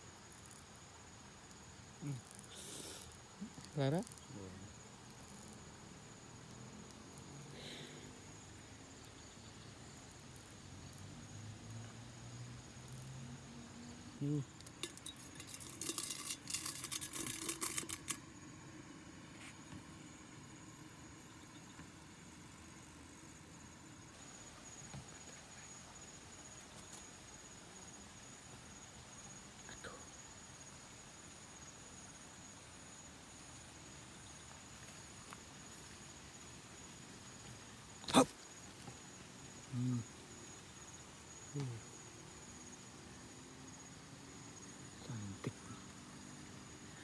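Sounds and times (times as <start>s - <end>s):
insects trilling: 0.0s - 47.0s
low grunt: 38.0s - 38.3s, 39.7s - 40.1s.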